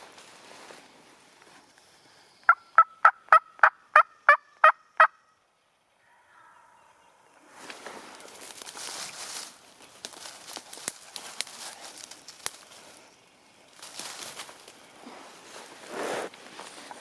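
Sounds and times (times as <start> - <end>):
rustling shuffling noise: 0.0 - 2.0, 7.5 - 13.1, 13.8 - 17.0.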